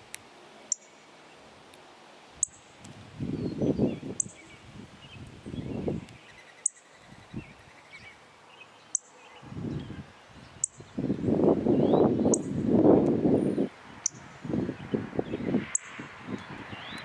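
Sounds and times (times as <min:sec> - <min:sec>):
wind buffeting microphone: 0:02.8 - 0:06.3, 0:07.0 - 0:08.1, 0:09.4 - 0:17.0.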